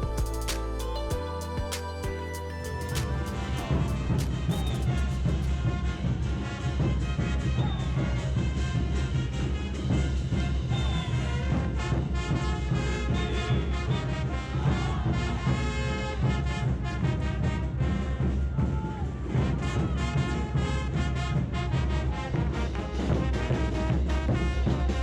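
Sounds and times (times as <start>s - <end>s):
brass band music with drums: 0.0s - 25.0s.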